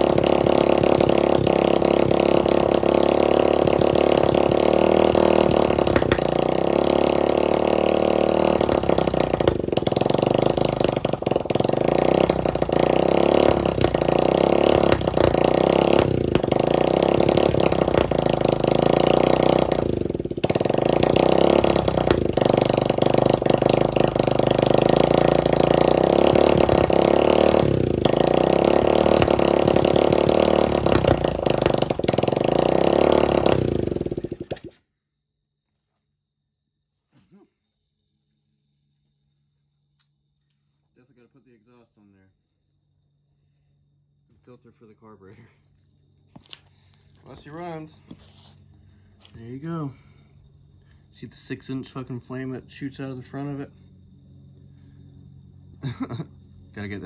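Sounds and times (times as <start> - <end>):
dirt bike engine running: 0.0 - 34.8, 46.2 - 57.0.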